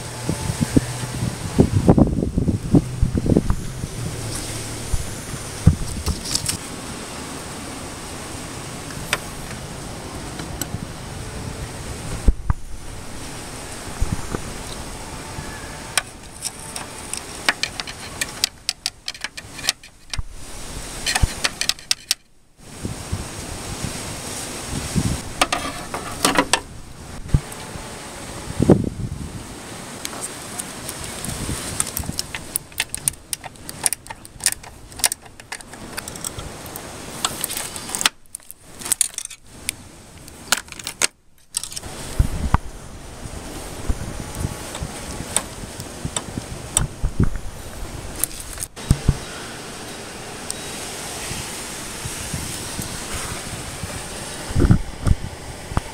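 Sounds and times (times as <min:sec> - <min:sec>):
steady hiss: 0:00.0 - 0:55.9
hand tools clicking and knocking: 0:15.9 - 0:20.2, 0:21.0 - 0:22.3, 0:25.4 - 0:26.7, 0:31.8 - 0:36.5, 0:37.2 - 0:39.4.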